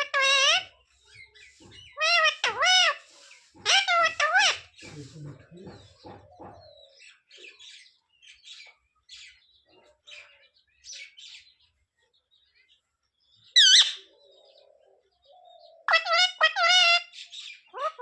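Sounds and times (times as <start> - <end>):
parrot chirping softly: 0.0 - 6.8.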